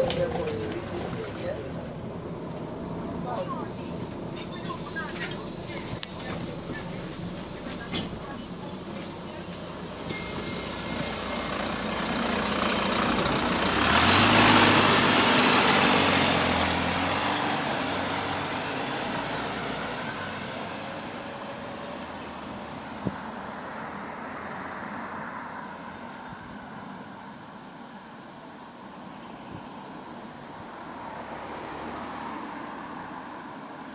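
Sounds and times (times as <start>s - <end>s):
air hissing: 3.8s - 13.1s.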